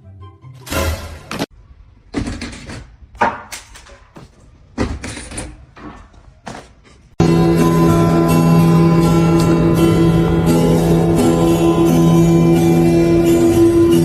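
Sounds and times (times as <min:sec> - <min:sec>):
guitar music: 0:07.2 - 0:14.0.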